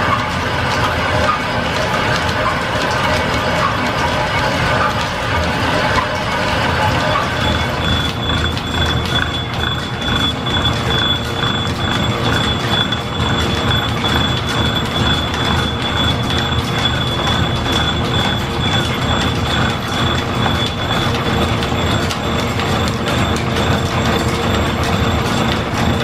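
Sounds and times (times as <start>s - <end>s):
fine rapid clicking: 0.0s - 26.0s
machinery high-pitched whine: 0.0s - 26.0s
mechanical rumble: 0.0s - 26.0s.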